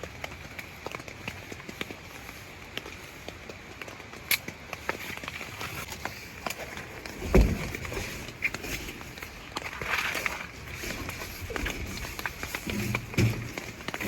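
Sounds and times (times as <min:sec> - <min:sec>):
rain pattering on a tarp: 0:00.0 - 0:14.0
dull thump: 0:07.1 - 0:09.2, 0:10.7 - 0:14.0.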